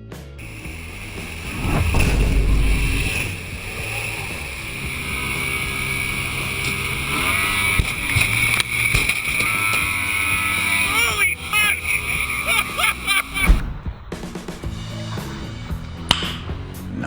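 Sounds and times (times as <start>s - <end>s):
heavy low rumble: 0.4s - 6.6s
wind: 0.4s - 6.9s
motorboat running: 0.4s - 13.6s.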